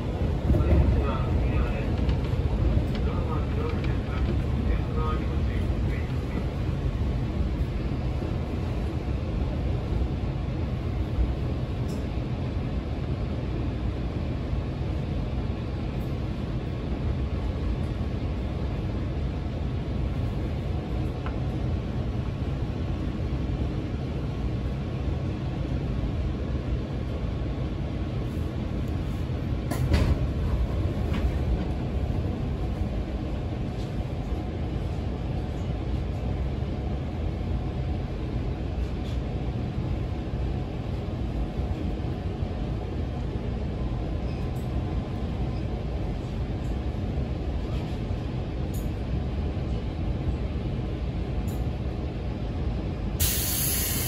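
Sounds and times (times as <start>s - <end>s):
train wheels rumbling: 0.0s - 10.0s.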